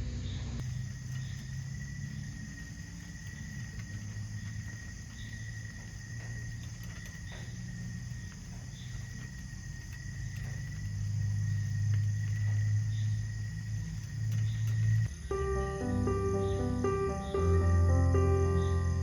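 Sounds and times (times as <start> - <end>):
low hum: 0.0 - 19.0
insects trilling: 0.1 - 19.0.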